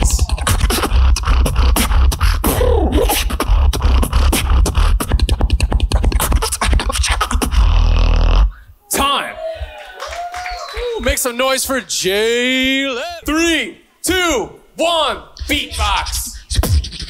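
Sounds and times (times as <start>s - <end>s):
beatboxing: 0.0s - 8.8s, 15.4s - 17.0s.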